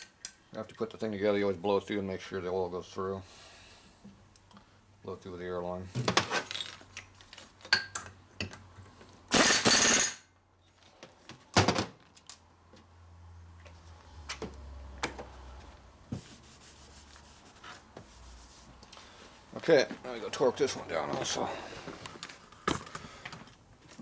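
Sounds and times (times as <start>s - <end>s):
metal parts and tools clinking: 0.0s - 0.6s, 6.1s - 8.6s, 9.3s - 10.2s.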